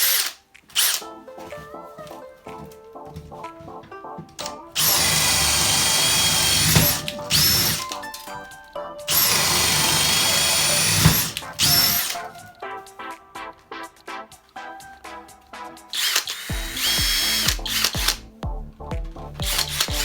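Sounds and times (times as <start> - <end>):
drill motor whine: 4.8 - 8.0, 9.1 - 12.2, 16.0 - 18.2.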